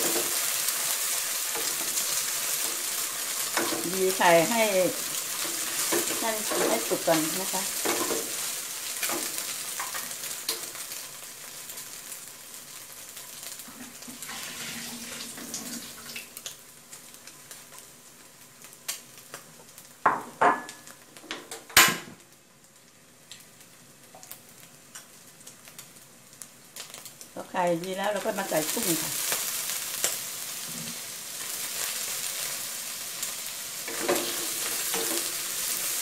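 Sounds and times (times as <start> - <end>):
spatula scraping wok: 0.0 - 10.1, 33.8 - 36.0
eggs sizzling in oil: 0.0 - 36.0
cookware clinking and knocking: 20.1 - 20.8.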